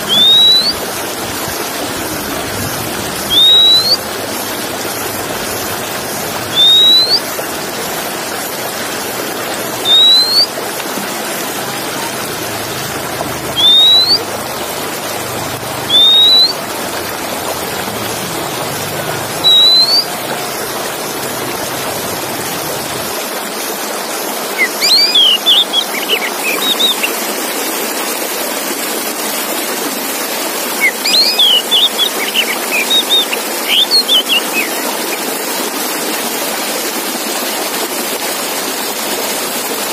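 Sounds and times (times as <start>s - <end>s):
bird chirping: 0.0s - 0.8s, 6.4s - 7.4s, 9.8s - 10.5s, 13.4s - 14.3s, 15.9s - 16.7s, 19.2s - 21.3s, 24.6s - 27.2s, 30.8s - 35.2s
bird whistling song: 0.0s - 1.0s, 3.2s - 5.6s, 6.2s - 8.0s, 9.6s - 10.6s, 13.4s - 14.4s, 15.8s - 17.0s, 19.2s - 21.3s, 24.6s - 27.2s, 30.8s - 35.2s.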